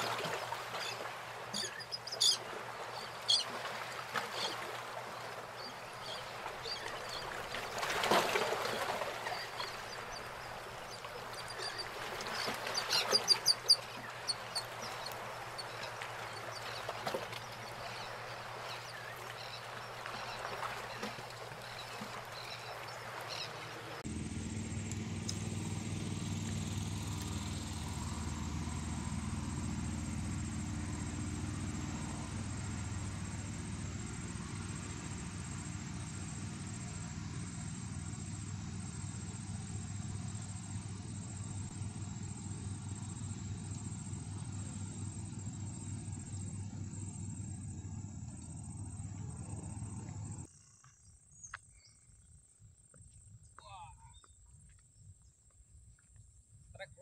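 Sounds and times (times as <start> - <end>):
steady low rumble: 24.0 - 50.5.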